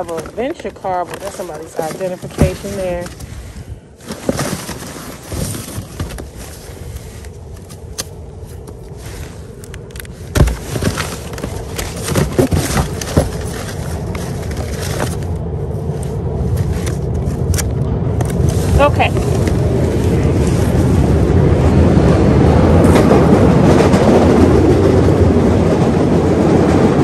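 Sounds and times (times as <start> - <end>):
rustling trash: 0.0 - 21.2
low vehicle rumble: 0.0 - 27.0.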